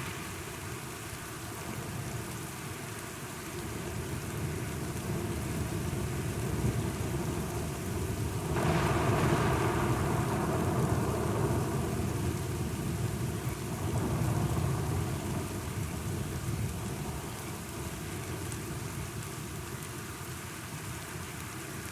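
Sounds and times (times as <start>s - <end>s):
steady rain: 0.0s - 21.9s
thunder rumbling: 8.4s - 17.0s.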